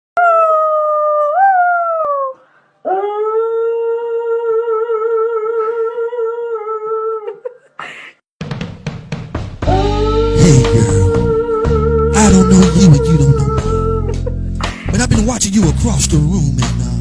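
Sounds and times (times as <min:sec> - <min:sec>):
dog howling: 0:00.2 - 0:07.4
drum hits: 0:08.4 - 0:09.8.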